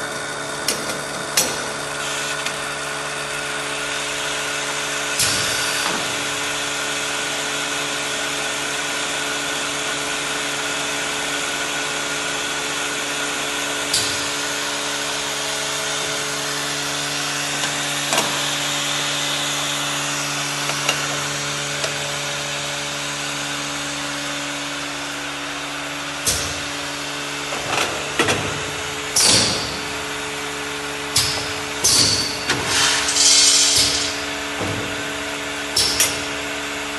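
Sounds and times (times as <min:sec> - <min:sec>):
machine motor humming: 0:11.6 - 0:36.9.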